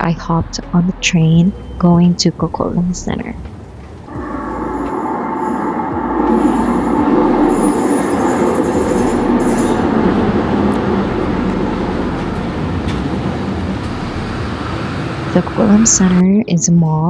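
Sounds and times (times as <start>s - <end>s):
train rumbling on rails: 0.0s - 16.3s
high wheel whine: 3.7s - 16.2s.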